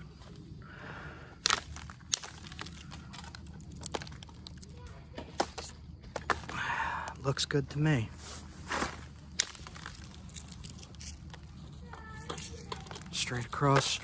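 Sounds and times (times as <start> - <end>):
stone flakes snapping off: 1.4 - 4.7, 9.3 - 10.6.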